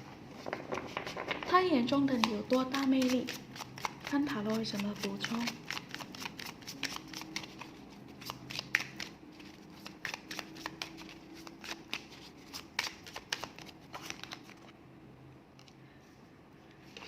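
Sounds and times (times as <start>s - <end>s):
cards being shuffled by hand: 0.3s - 14.7s.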